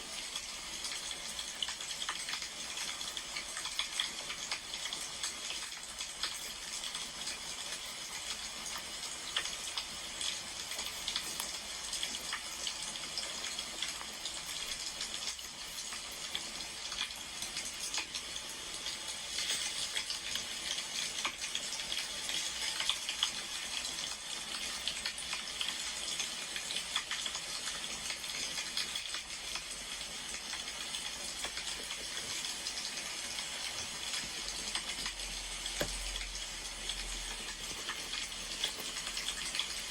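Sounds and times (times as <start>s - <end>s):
wood fire crackling: 34.2s - 39.9s.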